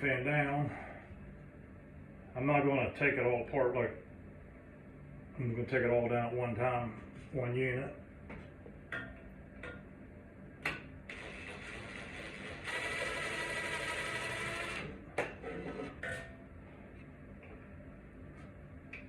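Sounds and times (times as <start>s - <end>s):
small electric motor whirring: 11.1s - 14.9s.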